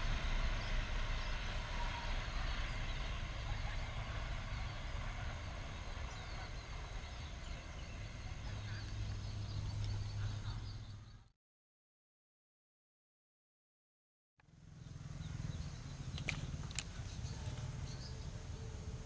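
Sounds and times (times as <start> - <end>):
diesel train rumbling: 0.0 - 11.3, 14.5 - 19.0
faint bird calls: 0.6 - 11.3, 14.8 - 19.0.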